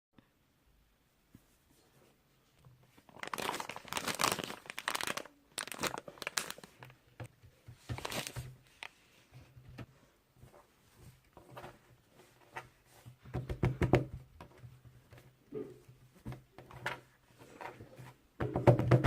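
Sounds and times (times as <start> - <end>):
wrapper crinkling and rustling: 2.9 - 7.1, 7.8 - 9.0.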